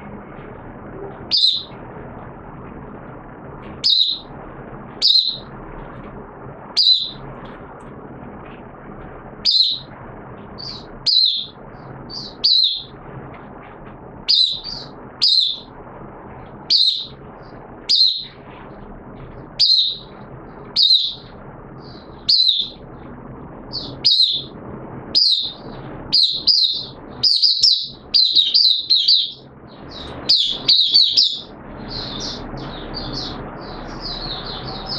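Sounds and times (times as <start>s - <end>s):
bird singing high-pitched phrases: 1.3s - 1.7s, 3.8s - 4.3s, 5.0s - 5.4s, 6.8s - 7.2s, 9.4s - 9.9s, 10.6s - 12.9s, 14.3s - 15.7s, 16.7s - 17.2s, 17.9s - 18.3s, 19.6s - 20.1s, 20.7s - 21.2s, 21.8s - 22.8s, 23.7s - 24.5s, 25.2s - 34.9s.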